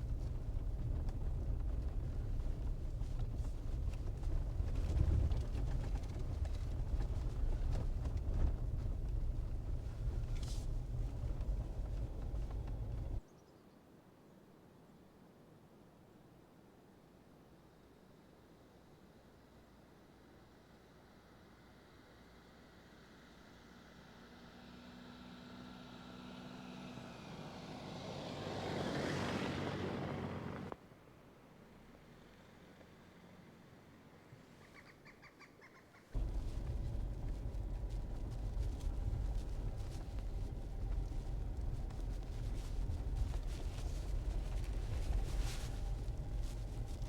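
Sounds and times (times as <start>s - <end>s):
engine and tyres rumbling: 0.0s - 13.2s, 23.1s - 30.8s, 36.2s - 47.0s
vehicle and road noise: 0.0s - 13.2s, 21.5s - 34.8s, 36.2s - 47.0s.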